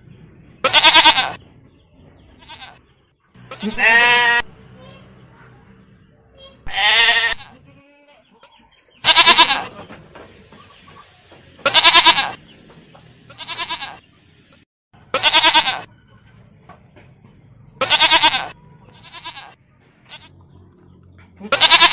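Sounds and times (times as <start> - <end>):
goats bleating: 0.6 - 1.4, 2.4 - 2.8, 3.5 - 4.5, 6.6 - 9.9, 11.6 - 12.4, 13.3 - 14.0, 15.1 - 15.9, 17.8 - 20.5, 21.4 - 21.9.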